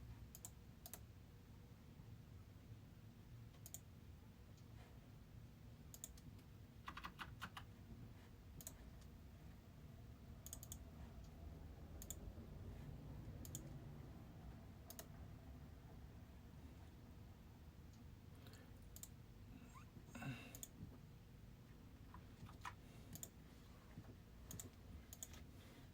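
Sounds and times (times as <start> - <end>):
faint clicks: 3.5 - 3.8, 10.4 - 11.4, 17.9 - 19.2
low steady hum: 7.6 - 25.9.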